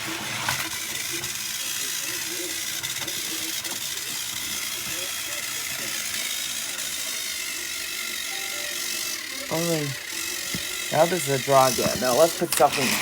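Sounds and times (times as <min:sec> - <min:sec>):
toy train motor whirring: 0:00.0 - 0:13.0
gears and wheels rattling: 0:09.0 - 0:13.0.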